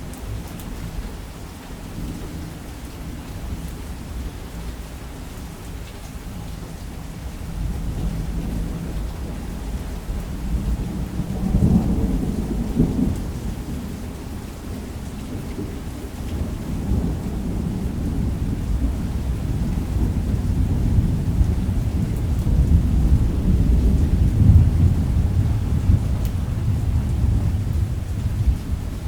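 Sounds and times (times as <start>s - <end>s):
heavy rain: 0.0s - 29.0s
low rumble of thunder: 6.1s - 29.0s.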